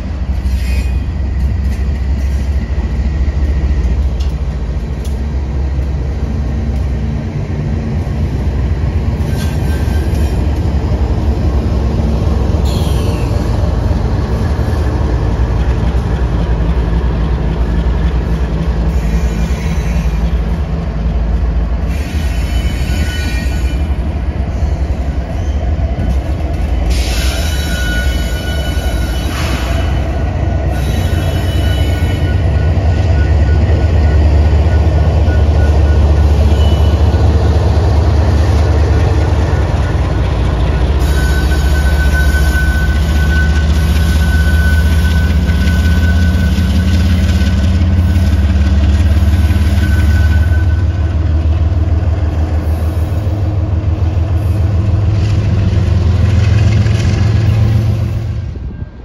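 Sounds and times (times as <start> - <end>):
freight train wheels rumbling: 0.0 - 59.0
high-pitched wheel squeal: 12.6 - 13.5, 18.9 - 20.4, 21.9 - 24.0, 26.9 - 37.2, 39.8 - 48.4, 49.2 - 51.0.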